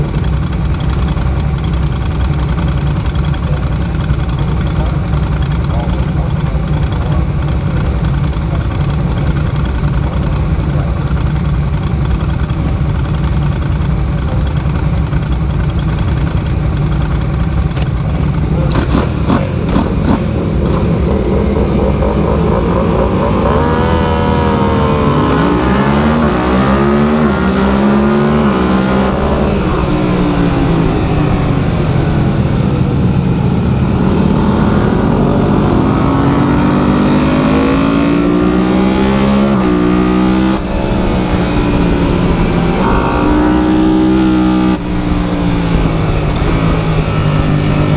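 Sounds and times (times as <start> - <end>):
small engine running: 40.6 - 44.2.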